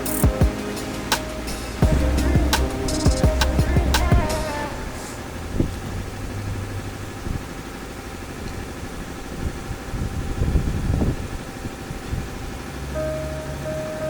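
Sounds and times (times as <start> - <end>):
car engine idling: 0.0 - 14.0
low thuds: 1.5 - 4.6.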